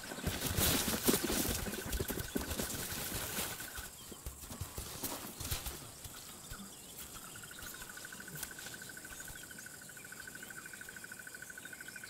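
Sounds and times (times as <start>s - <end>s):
insect trilling: 6.0s - 12.0s.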